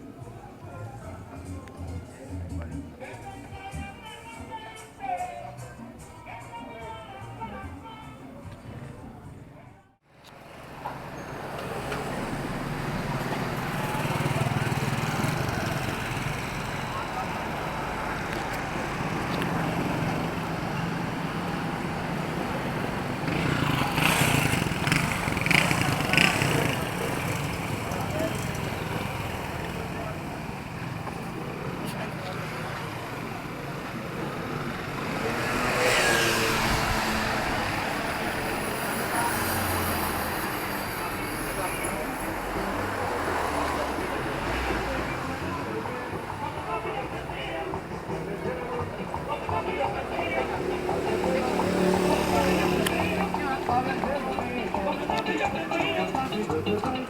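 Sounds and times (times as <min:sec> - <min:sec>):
traffic noise: 0:00.0 - 0:57.0
vehicle engine running: 0:11.9 - 0:35.4.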